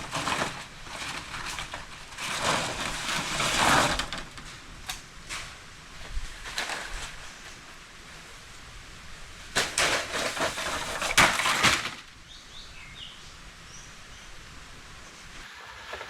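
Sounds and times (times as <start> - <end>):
rustling and crackling: 0.0 - 12.3
sharp cracks: 9.5 - 12.2
faint bird chirps: 12.2 - 14.5.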